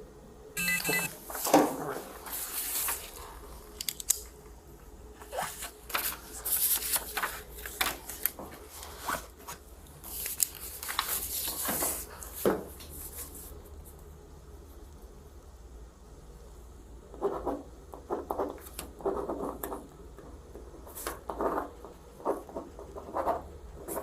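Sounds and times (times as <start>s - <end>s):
rustling and scraping handling: 5.3s - 13.6s.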